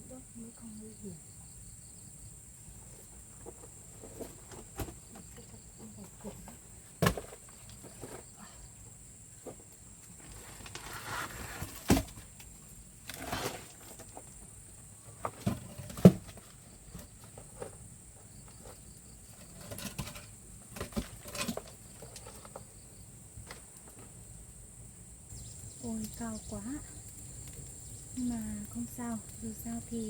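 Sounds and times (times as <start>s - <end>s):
rustling: 9.4s - 22.8s
high-pitched insect buzz: 25.3s - 30.0s.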